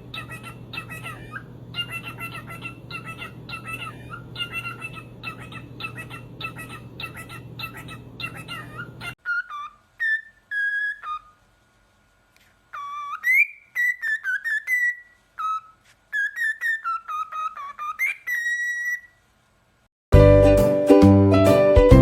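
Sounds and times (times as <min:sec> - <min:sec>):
music: 0:20.1 - 0:22.0.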